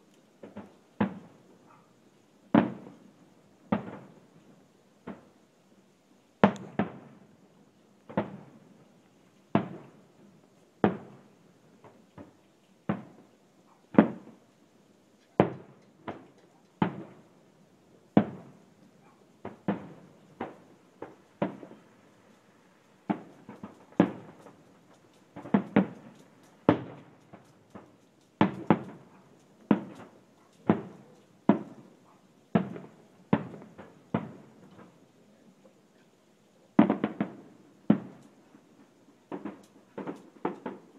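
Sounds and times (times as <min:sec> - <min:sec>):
fireworks bangs: 0:00.0 - 0:01.8, 0:02.5 - 0:03.0, 0:03.7 - 0:04.2, 0:06.4 - 0:07.2, 0:08.1 - 0:08.6, 0:09.5 - 0:10.0, 0:10.8 - 0:13.3, 0:13.9 - 0:14.4, 0:15.4 - 0:17.3, 0:18.2 - 0:22.0, 0:23.0 - 0:35.0, 0:36.8 - 0:40.9.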